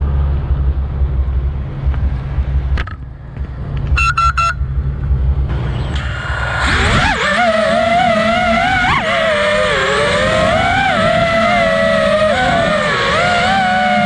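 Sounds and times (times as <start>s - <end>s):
wind rumble on microphone: 0.0s - 14.0s
quick electronic beeps: 4.0s - 4.7s.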